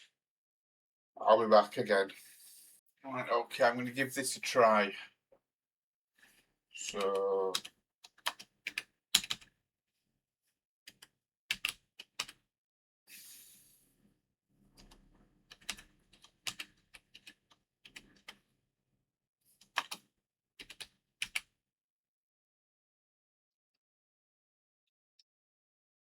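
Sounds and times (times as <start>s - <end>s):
computer keyboard typing: 6.8s - 9.5s, 10.9s - 12.4s, 14.8s - 18.4s, 19.7s - 20.0s, 20.6s - 21.4s.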